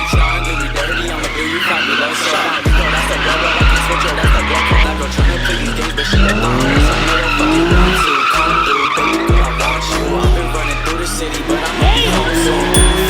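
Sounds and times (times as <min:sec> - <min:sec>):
music with deep bass kick: 0:00.0 - 0:00.8, 0:03.6 - 0:05.4, 0:06.0 - 0:08.0, 0:09.3 - 0:10.8, 0:12.7 - 0:13.0
car tyres screeching: 0:00.0 - 0:13.0.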